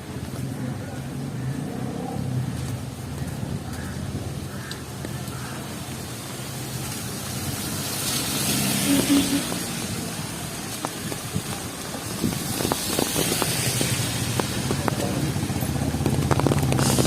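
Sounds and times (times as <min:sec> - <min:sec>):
tyre hiss on wet road: 0:05.2 - 0:15.4, 0:16.5 - 0:17.0
vehicle engine running: 0:10.9 - 0:17.0.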